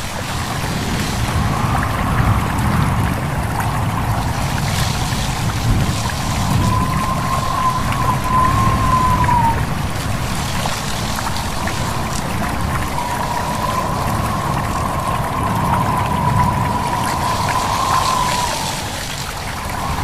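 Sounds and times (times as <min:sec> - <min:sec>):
babbling stream: 0:00.0 - 0:20.0
gusting wind: 0:00.0 - 0:20.0
wavering whistle-like tone: 0:05.9 - 0:09.7, 0:11.3 - 0:20.0.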